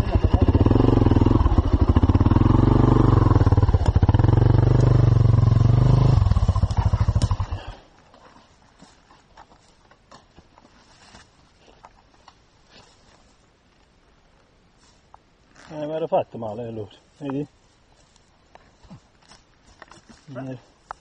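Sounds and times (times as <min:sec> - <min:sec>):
dirt bike engine running: 0:00.0 - 0:07.8.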